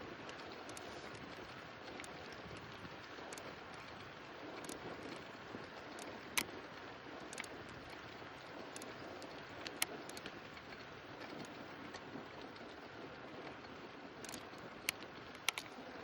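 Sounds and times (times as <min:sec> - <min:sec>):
bicycle tyres rolling: 0:00.0 - 0:16.0
light clicks and ticks: 0:00.0 - 0:16.0.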